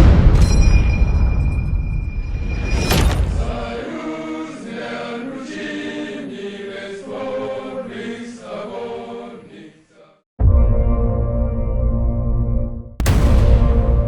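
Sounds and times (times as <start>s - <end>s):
choir singing chant-like notes: 3.3s - 10.3s.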